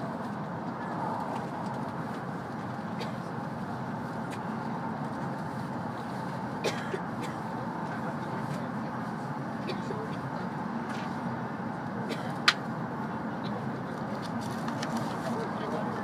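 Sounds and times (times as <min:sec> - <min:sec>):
train cabin rumble and rush: 0:00.0 - 0:16.0.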